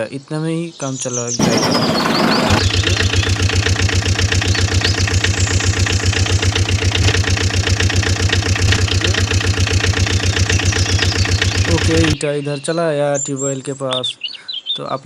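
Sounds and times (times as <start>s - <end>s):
tractor engine chugging: 1.4s - 12.2s.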